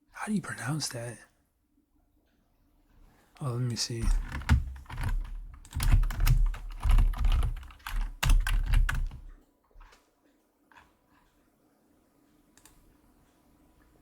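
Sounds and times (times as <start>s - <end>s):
fast keyboard typing: 4.0s - 9.3s.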